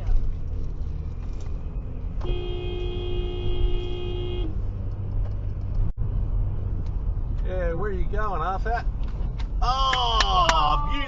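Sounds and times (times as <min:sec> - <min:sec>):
car driving rumble: 0:00.0 - 0:11.0
car horn blast: 0:02.2 - 0:04.6.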